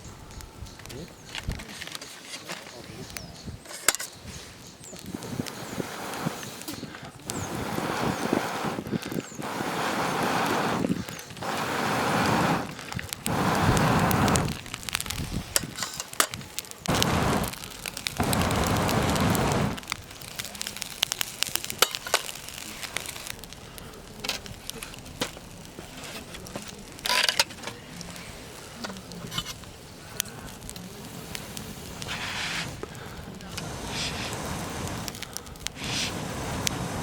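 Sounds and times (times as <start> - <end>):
campfire crackling and popping: 0.0 - 37.0
gusts of rushing air: 5.1 - 15.8, 16.8 - 20.2, 30.0 - 37.0
short hiss: 5.2 - 8.8, 9.4 - 12.7, 13.3 - 14.5, 31.2 - 32.8, 33.5 - 37.0.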